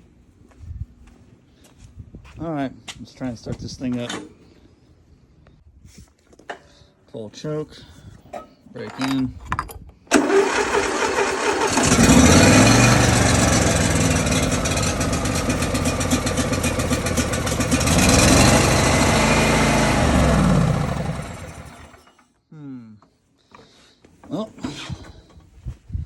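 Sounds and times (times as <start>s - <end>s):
lawn mower engine firing unevenly: 10.1s - 22.2s.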